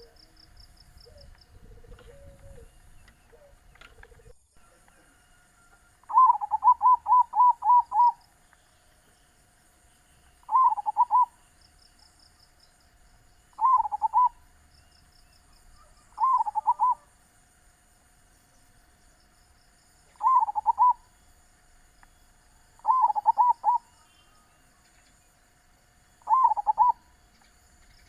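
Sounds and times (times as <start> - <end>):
insect hiss: 0.0 - 28.0
dove cooing: 1.0 - 5.2, 6.0 - 8.2, 10.5 - 11.4, 13.5 - 14.4, 15.8 - 17.2, 20.1 - 21.1, 22.8 - 24.4, 26.2 - 27.2
small birds chirping: 6.1 - 17.1, 19.8 - 28.0.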